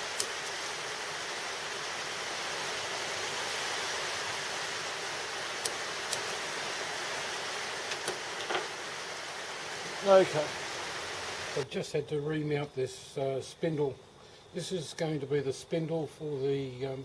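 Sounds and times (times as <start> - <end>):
steady rain: 0.0 - 11.7.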